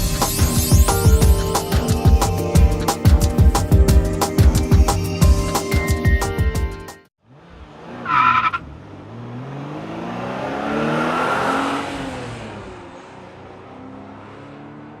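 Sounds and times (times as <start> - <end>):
car engine revving: 7.2 - 15.0.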